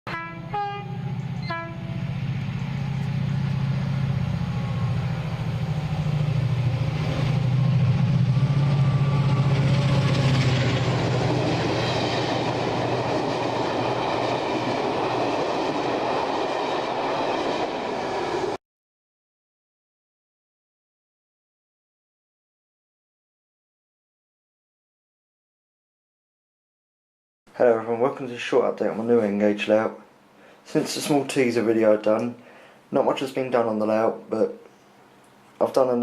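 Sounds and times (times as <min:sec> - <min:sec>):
train horn blasts: 0:00.1 - 0:05.5
rail noise: 0:00.1 - 0:18.6, 0:27.9 - 0:32.3
train engine running: 0:00.1 - 0:18.6.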